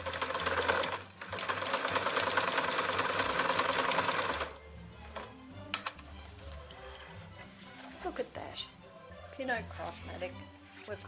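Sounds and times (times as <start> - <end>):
sewing machine running: 0.0 - 5.3.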